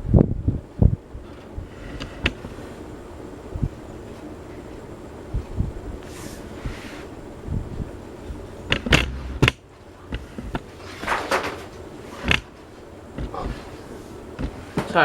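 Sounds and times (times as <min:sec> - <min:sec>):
ceiling fans running: 0:00.0 - 0:15.0
posters falling with sharp knocks: 0:10.2 - 0:12.6.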